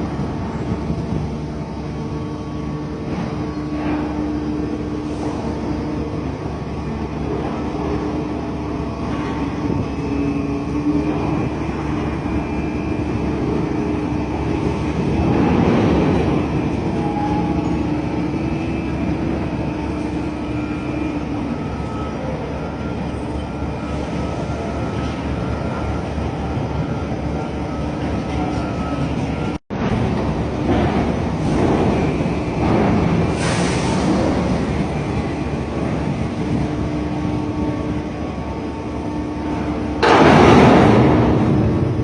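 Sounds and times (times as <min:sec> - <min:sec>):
humming tones: 0:00.0 - 0:33.4
heavy machinery drone: 0:00.0 - 0:42.0.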